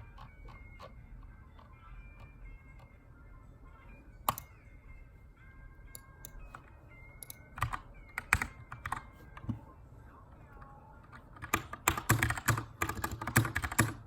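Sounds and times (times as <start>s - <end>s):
faint background music: 0.0s - 14.0s
mechanical keyboard keystrokes: 7.2s - 9.0s, 11.3s - 14.0s.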